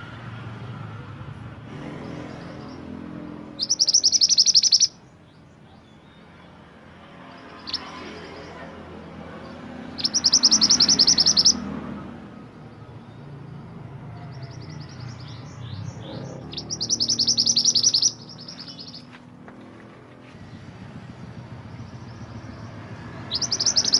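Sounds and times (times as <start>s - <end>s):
bird trilling: 2.5s - 5.1s, 7.4s - 8.5s, 9.8s - 11.7s, 14.3s - 19.2s, 21.8s - 23.9s.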